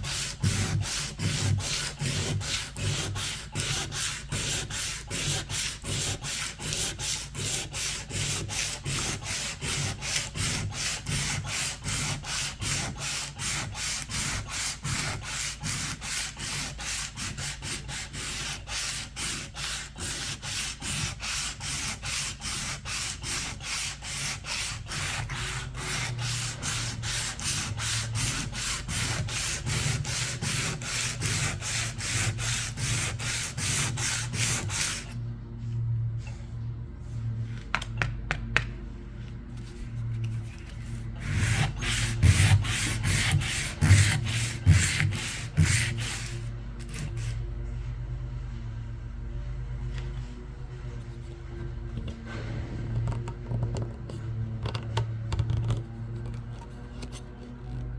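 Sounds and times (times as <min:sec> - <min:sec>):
sandpaper rubbing on paint: 0:00.0 - 0:35.2, 0:39.7 - 0:47.4.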